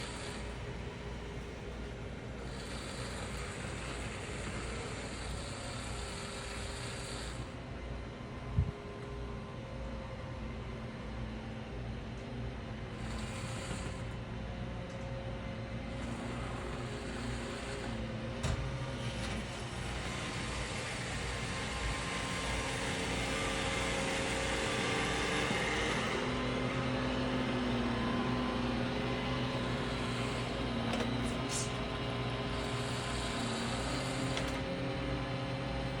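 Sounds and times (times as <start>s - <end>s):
robot vacuum cleaner whirring: 2.3s - 7.6s, 13.0s - 14.2s, 15.9s - 36.0s.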